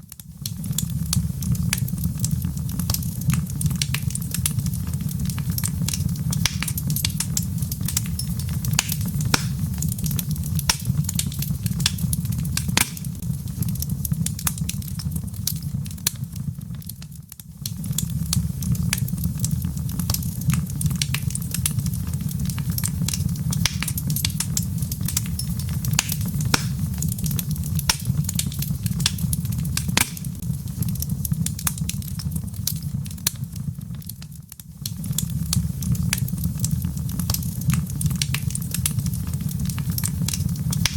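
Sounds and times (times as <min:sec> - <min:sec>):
wood crackling and popping: 0:00.0 - 0:40.9
fire flames rumbling: 0:00.1 - 0:40.9.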